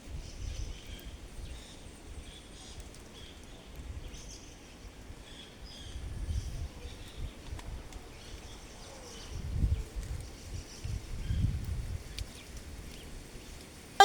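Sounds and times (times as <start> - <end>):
wind rumble on microphone: 0.0 - 2.9, 5.8 - 8.6, 9.2 - 13.5.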